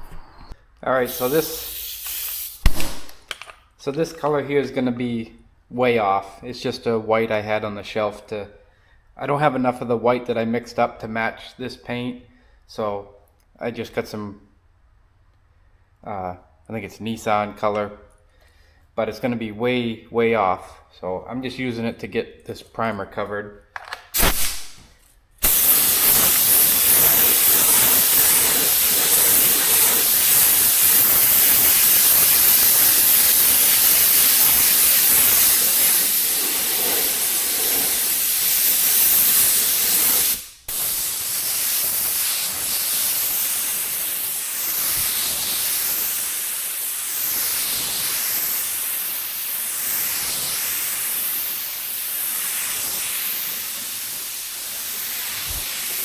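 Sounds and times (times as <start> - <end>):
paint spray gun hissing: 1.0 - 3.4, 24.2 - 56.0.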